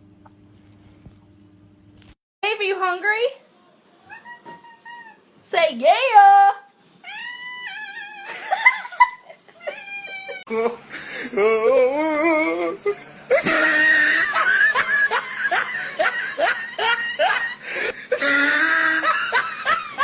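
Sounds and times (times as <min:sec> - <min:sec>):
person laughing hard: 0:08.3 - 0:12.7, 0:13.3 - 0:20.0.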